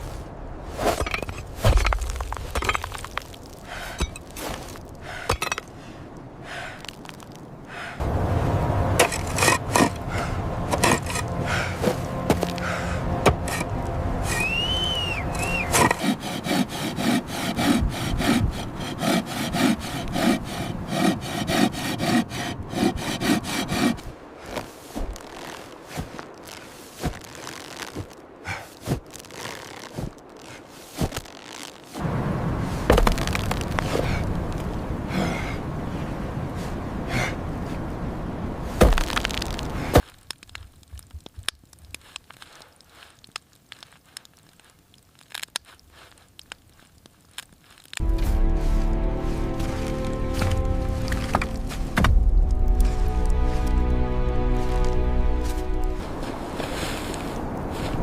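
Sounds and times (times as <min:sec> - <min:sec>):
hand saw cutting timber: 0:09.0 - 0:14.5, 0:15.3 - 0:31.8.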